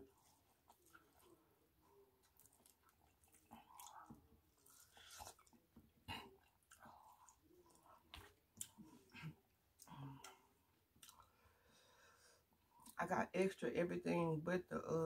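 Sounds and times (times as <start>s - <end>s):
chewing and biting corn: 0.0s - 9.1s.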